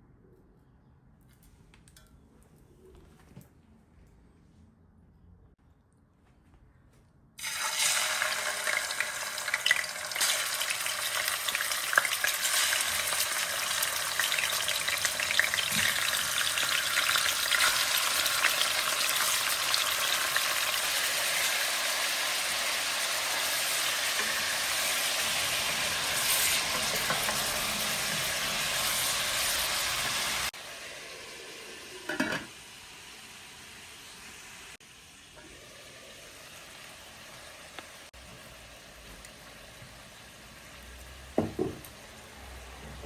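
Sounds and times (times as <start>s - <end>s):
food sizzling in hot oil: 7.4s - 38.2s.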